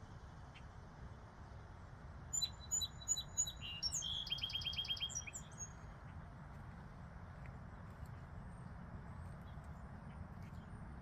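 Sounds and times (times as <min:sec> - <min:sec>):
songbird chirping and trilling: 0:02.3 - 0:05.8.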